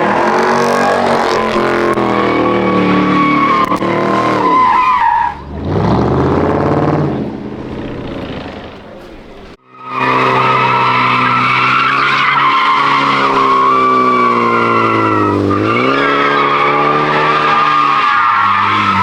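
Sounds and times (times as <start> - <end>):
tyres squealing on pavement: 0.0 - 6.0, 7.4 - 19.0
car engine at high revs: 0.0 - 19.0.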